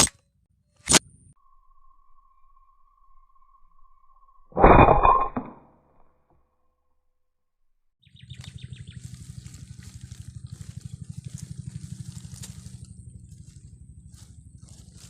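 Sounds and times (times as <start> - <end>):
rapid low throbbing: 8.6 - 15.0.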